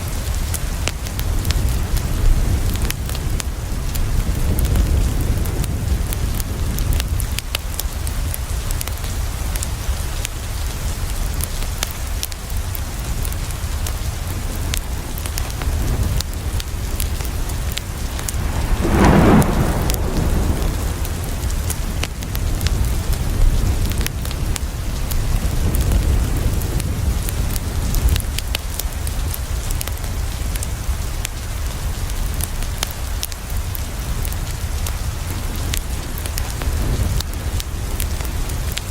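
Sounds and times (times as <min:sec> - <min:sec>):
rain on a window: 0:00.0 - 0:38.9
thunder: 0:15.8 - 0:24.6.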